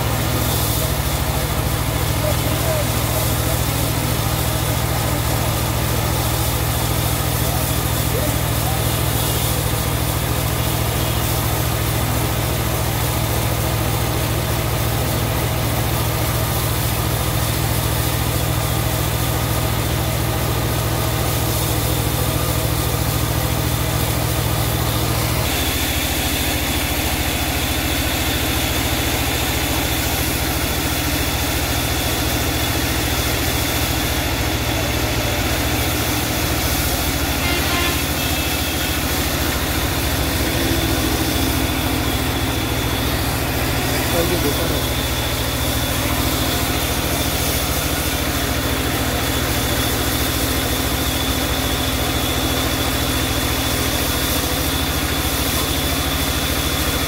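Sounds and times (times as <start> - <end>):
sawmill engine running: 0.0 - 57.0
steady high tone: 34.4 - 49.2.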